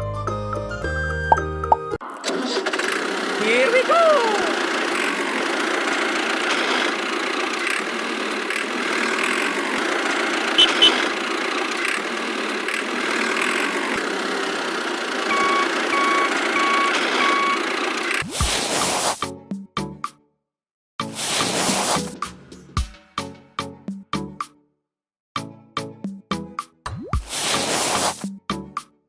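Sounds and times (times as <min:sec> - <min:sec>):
engine running: 0:01.3 - 0:19.2
reversing beeper: 0:15.3 - 0:17.7.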